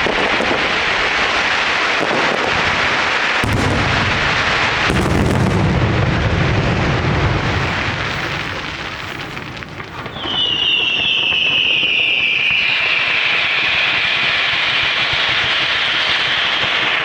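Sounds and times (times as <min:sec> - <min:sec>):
heavy firework booms: 0:00.0 - 0:12.8
firework shell bursts and crackle: 0:00.0 - 0:13.5
whistling firework: 0:00.0 - 0:17.0.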